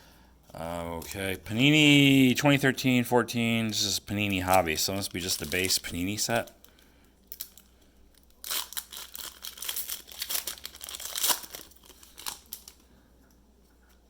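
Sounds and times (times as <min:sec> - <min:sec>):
card pack wrapper tearing and crinkling: 0:04.2 - 0:06.5, 0:07.3 - 0:12.8.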